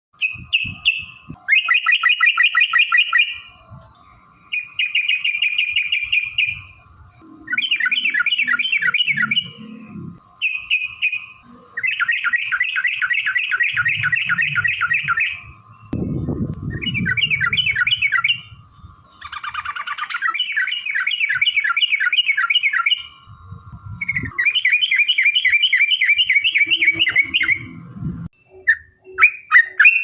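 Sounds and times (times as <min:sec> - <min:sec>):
bulbul singing: 0:00.2 - 0:30.0
fast bubbling bird chattering: 0:11.8 - 0:15.4.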